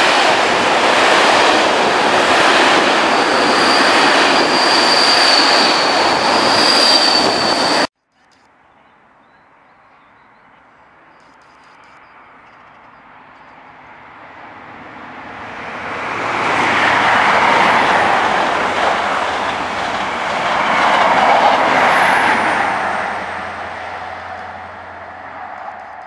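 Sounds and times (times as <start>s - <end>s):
diesel train passing: 0.0s - 7.9s, 13.1s - 26.0s.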